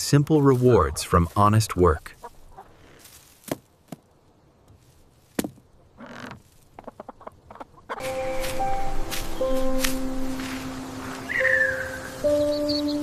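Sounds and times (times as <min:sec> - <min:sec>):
soft rustle: 0:00.0 - 0:07.2.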